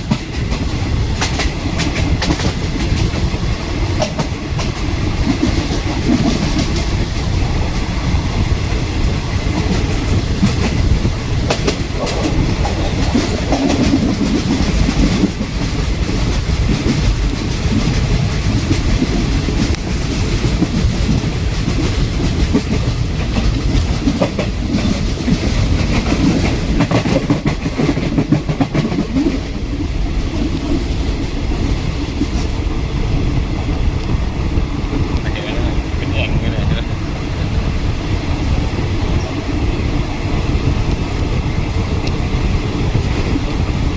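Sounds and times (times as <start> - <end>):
wheels clicking over rail joints: 0.0 - 32.6
train wheels rumbling: 0.0 - 43.9.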